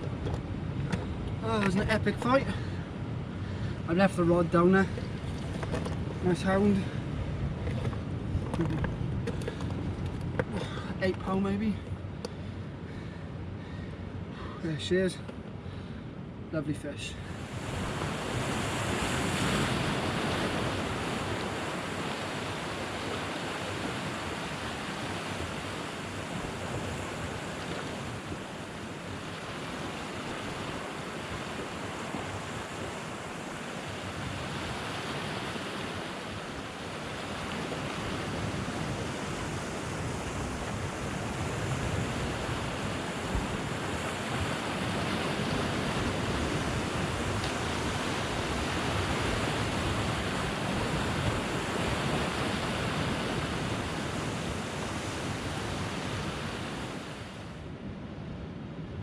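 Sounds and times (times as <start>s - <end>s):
sea waves on rocky shore: 0.0s - 16.0s, 16.8s - 57.8s
wind on microphone: 17.2s - 59.0s.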